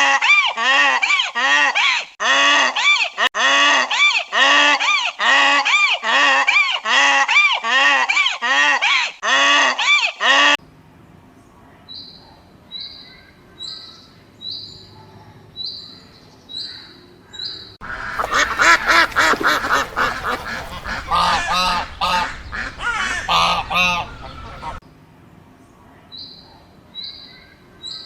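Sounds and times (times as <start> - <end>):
waterfowl honking and quacking: 17.8 - 24.8.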